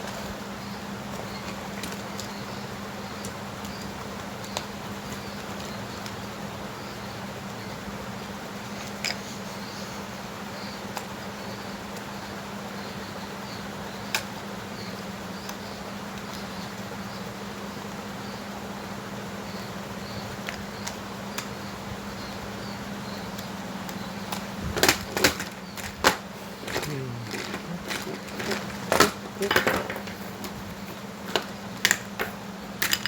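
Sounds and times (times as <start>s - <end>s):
hard objects clicking and knocking: 23.3s - 33.0s.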